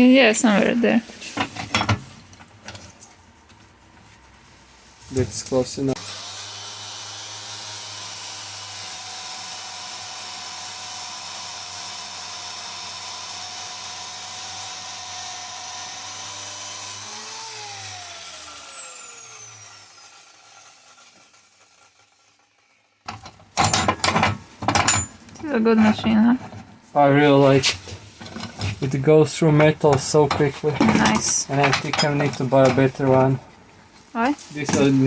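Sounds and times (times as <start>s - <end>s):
motor winding down: 6.0s - 22.4s
metal-cutting power tool whining: 6.0s - 25.0s.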